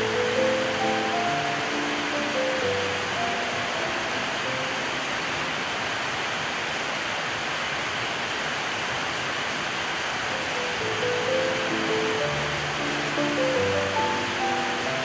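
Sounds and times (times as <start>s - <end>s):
soft music: 0.0s - 5.5s, 10.3s - 15.0s
steady rain: 0.0s - 15.0s.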